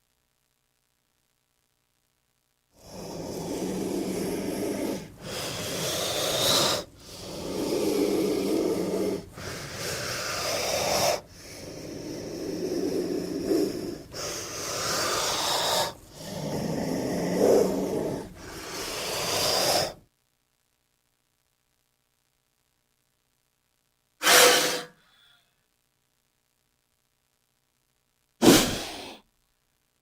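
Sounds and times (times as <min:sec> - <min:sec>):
snake hissing: 0:02.8 - 0:20.0, 0:24.2 - 0:25.0, 0:28.4 - 0:29.2.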